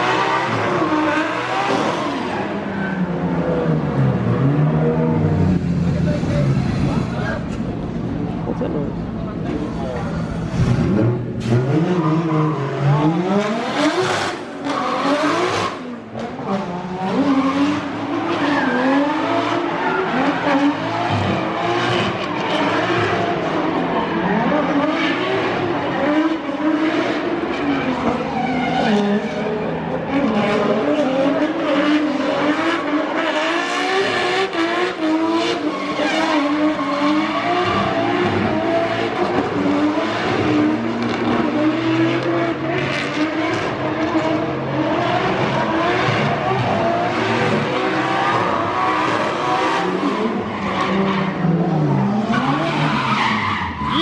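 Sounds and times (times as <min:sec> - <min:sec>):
car engine revving: 0:00.0 - 0:54.0
tyre screech: 0:48.2 - 0:54.0.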